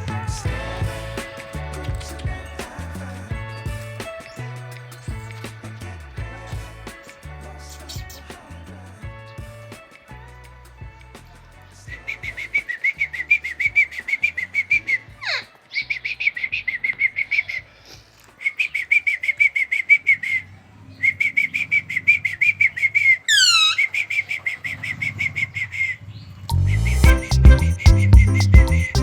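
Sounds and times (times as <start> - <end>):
parrot chattering: 23.3 - 23.9
falling whistle: 23.3 - 24.0.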